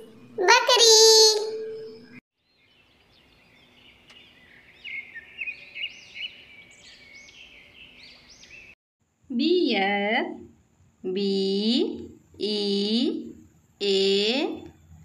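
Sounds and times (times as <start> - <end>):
faint outdoor ambience: 0.0 - 15.0
small birds chirping: 2.4 - 8.8.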